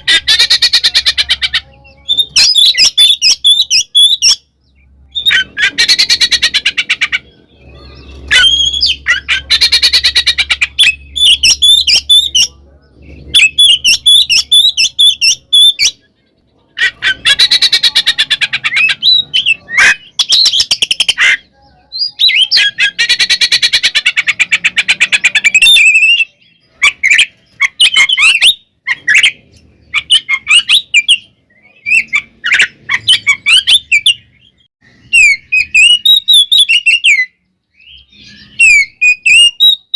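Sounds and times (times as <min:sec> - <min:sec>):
bird whistled notes: 0:35.0 - 0:39.9.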